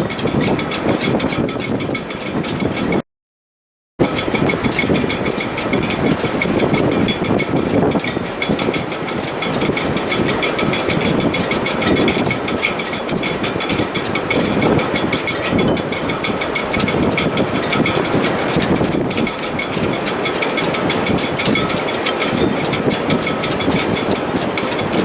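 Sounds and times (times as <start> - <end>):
wind rushing in rigging: 0.0 - 3.0, 4.0 - 25.0.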